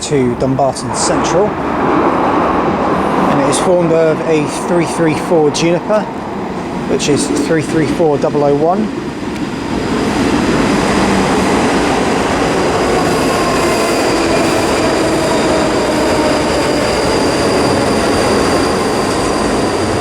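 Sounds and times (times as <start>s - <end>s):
train wheels rumbling: 0.0s - 20.0s
high squeal: 12.8s - 20.0s.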